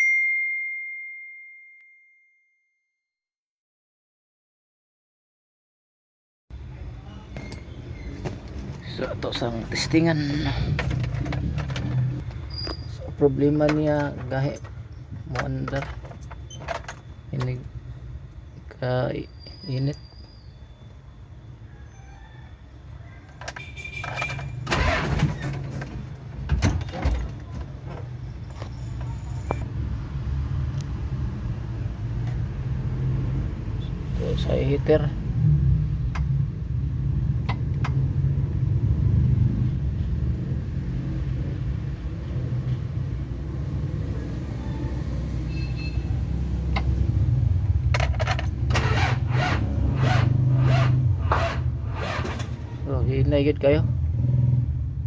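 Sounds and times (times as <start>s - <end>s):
diesel engine cranking: 7.2s - 18.4s, 23.3s - 29.6s, 46.2s - 52.8s
sharp clicks and rattles: 8.2s - 17.8s, 47.7s - 50.2s
starter cranking diesel engine: 48.0s - 52.6s.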